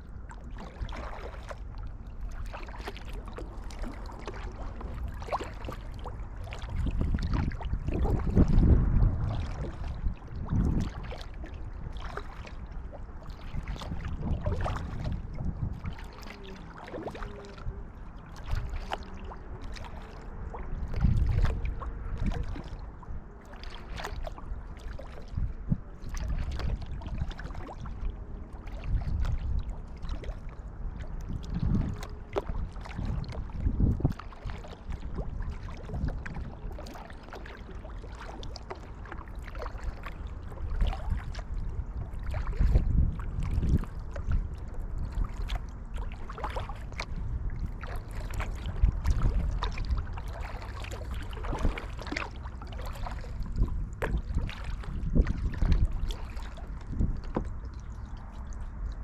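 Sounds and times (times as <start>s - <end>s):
kayak paddle dipping into water: 0.0s - 59.0s
low surge of water: 0.0s - 59.0s
water splashing and dripping: 0.5s - 22.8s, 23.4s - 25.5s, 28.6s - 41.6s, 45.1s - 59.0s.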